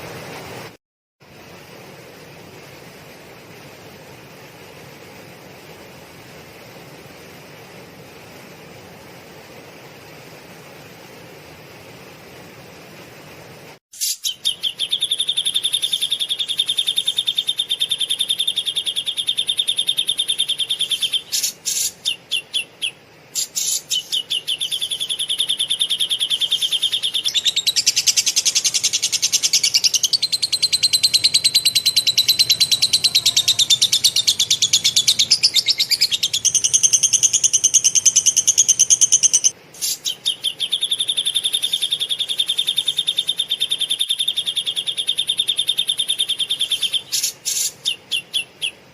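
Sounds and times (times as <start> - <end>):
songbird rapid chattering trills: 14.0 - 48.8.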